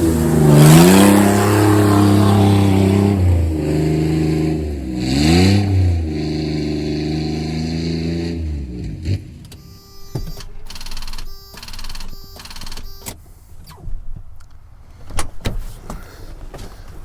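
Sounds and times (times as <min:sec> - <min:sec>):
vehicle engine revving: 0:00.0 - 0:13.0
clicks: 0:09.4 - 0:16.1.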